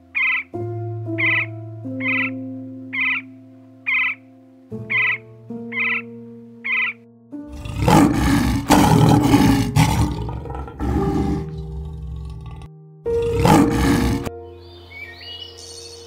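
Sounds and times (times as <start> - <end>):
soft piano music: 0.0 - 16.0
bird call: 1.2 - 2.4, 3.0 - 3.3, 4.9 - 7.0
lion roaring: 7.5 - 14.3.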